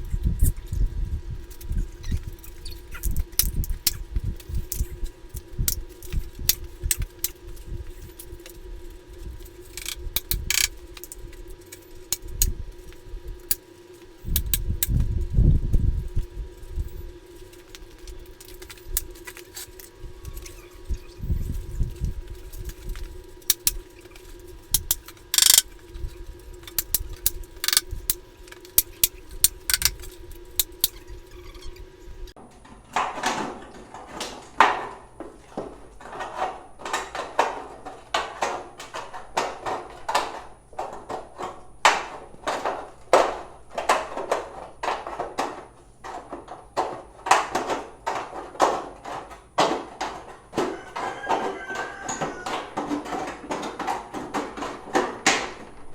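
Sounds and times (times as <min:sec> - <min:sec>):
knocks and taps of building work: 0:32.6 - 0:55.7.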